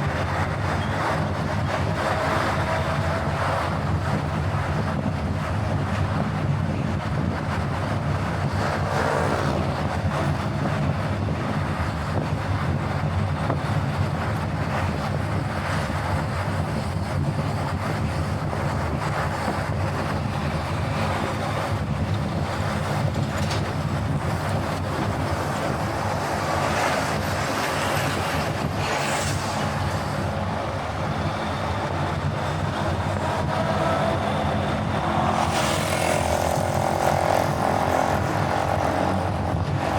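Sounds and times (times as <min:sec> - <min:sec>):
car engine hum: 0:15.3 - 0:39.9.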